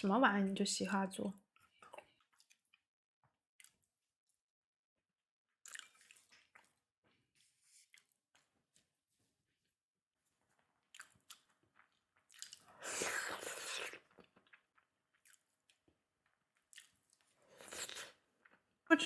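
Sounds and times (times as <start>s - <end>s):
chewing food: 1.4s - 4.1s, 5.5s - 9.0s, 10.3s - 18.9s.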